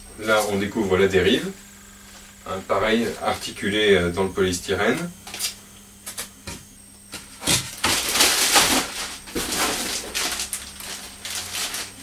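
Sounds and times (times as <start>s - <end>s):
plastic packaging rustling: 7.5s - 12.0s.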